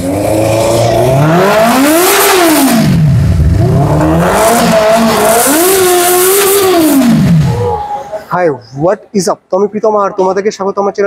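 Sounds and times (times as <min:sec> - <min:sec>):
motorcycle engine revving: 0:00.0 - 0:07.8.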